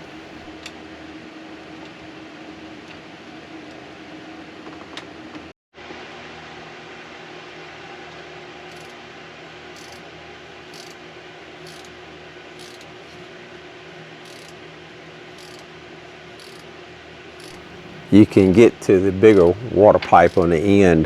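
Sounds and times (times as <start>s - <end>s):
steady low hum: 7.3s - 21.0s
hand ratchet clicking: 9.8s - 10.0s, 10.7s - 11.0s, 11.6s - 11.9s, 14.2s - 14.6s, 15.4s - 15.6s, 16.4s - 16.7s, 17.4s - 17.6s, 20.0s - 20.6s.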